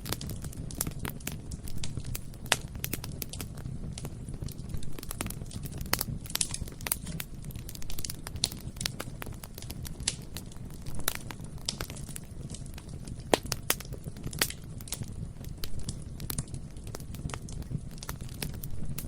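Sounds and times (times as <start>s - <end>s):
fire rumbling: 0.0s - 19.0s
wood crackling and popping: 0.0s - 19.0s.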